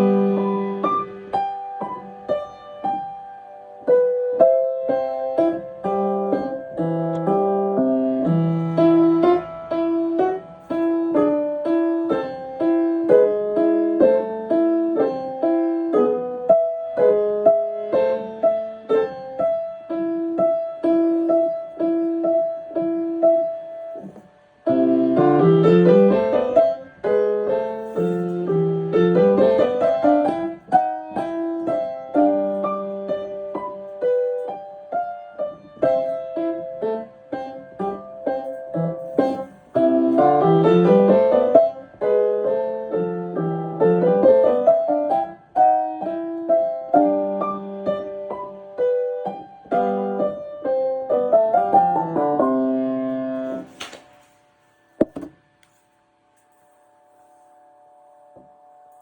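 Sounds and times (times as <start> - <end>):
solo piano: 0.0 - 55.5.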